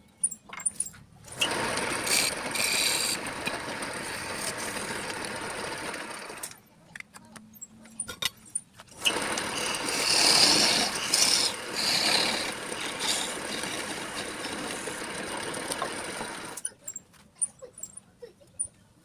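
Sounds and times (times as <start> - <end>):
lathe tool scraping wood: 1.3 - 6.5, 9.0 - 16.6.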